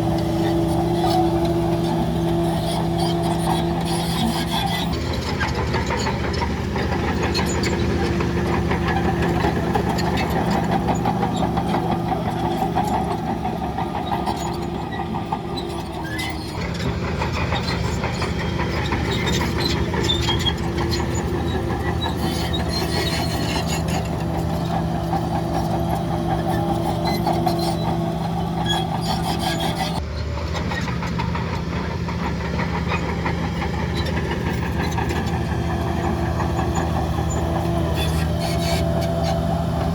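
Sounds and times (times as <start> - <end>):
diesel machinery engine drone: 0.0 - 39.9.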